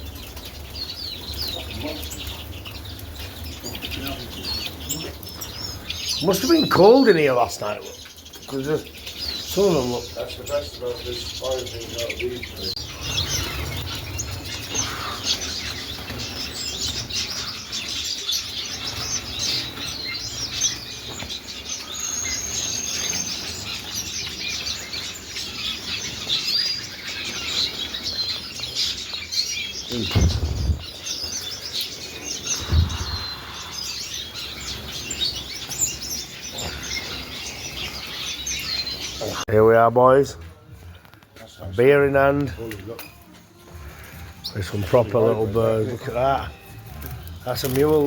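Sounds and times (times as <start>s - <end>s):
small birds chirping: 0.0s - 48.0s
dull thumps: 29.9s - 31.0s, 32.6s - 33.3s.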